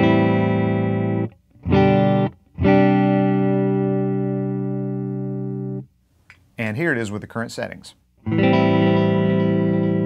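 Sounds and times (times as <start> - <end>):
electric guitar chords: 0.0 - 5.9, 8.2 - 10.0.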